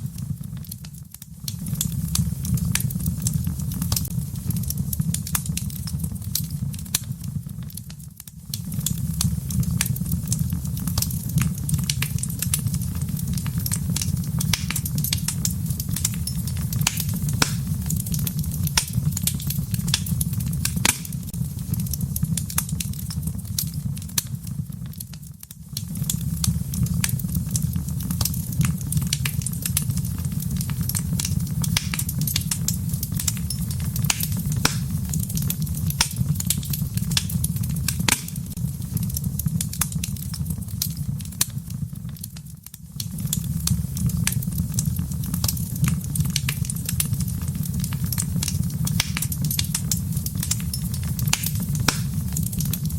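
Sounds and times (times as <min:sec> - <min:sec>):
low rumble of flames: 0:00.0 - 0:52.9
wood fire crackling and popping: 0:00.0 - 0:52.9.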